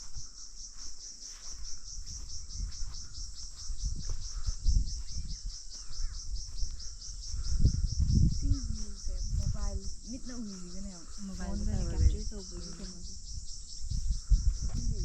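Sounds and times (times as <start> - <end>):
faint bird chirps: 0.0 - 9.4
insect chirping: 0.0 - 15.0.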